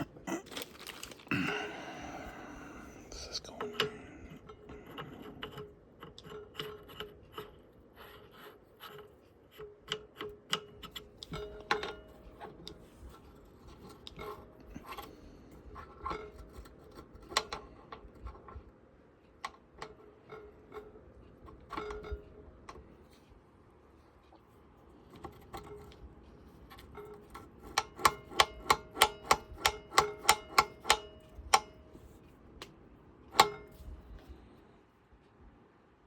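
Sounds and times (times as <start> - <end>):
small metal parts clicking and tapping: 3.6 - 18.6, 26.6 - 31.8.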